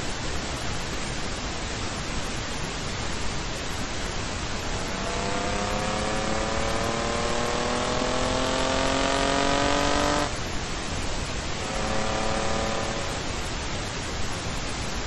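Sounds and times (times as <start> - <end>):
wind and road noise: 0.0 - 15.0
car engine accelerating: 4.6 - 10.4, 11.4 - 13.5.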